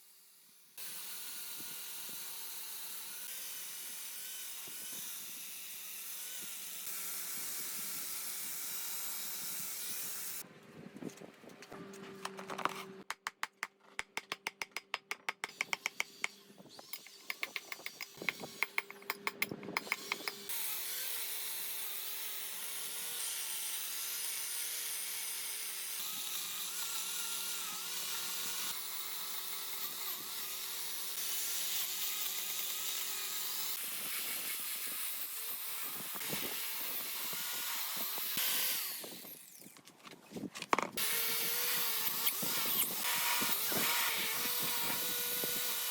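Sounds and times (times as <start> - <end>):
rapid sharp taps: 13.1 - 15.9
power tool running: 15.3 - 39.7, 41.0 - 45.9.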